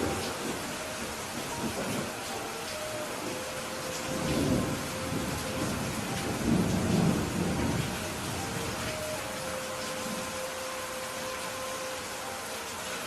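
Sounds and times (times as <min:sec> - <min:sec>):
thunder rumbling: 0:00.0 - 0:02.2, 0:03.1 - 0:09.4
heavy rain: 0:00.0 - 0:13.0.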